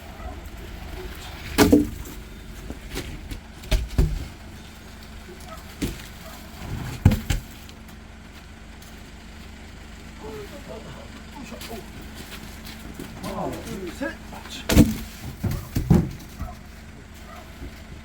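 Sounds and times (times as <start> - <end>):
low steady hum: 0.0 - 18.0
firewood logs thudding: 0.1 - 8.1, 11.6 - 18.0.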